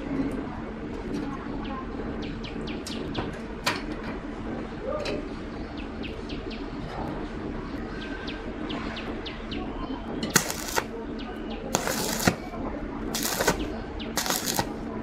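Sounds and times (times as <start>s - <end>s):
low background hum: 0.0s - 15.0s
small birds chirping: 1.4s - 3.4s, 5.4s - 14.9s.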